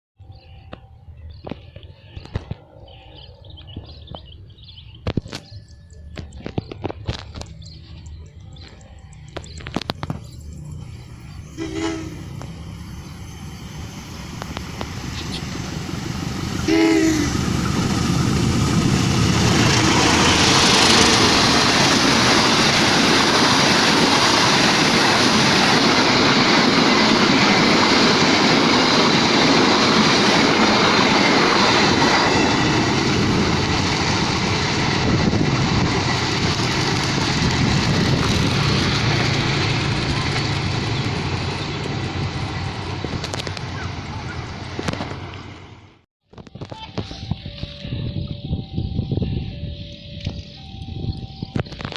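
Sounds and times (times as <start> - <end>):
train passing with wheel clatter: 0.2 - 46.0, 46.8 - 51.9
locomotive horn blasts: 11.5 - 12.6, 16.6 - 17.5.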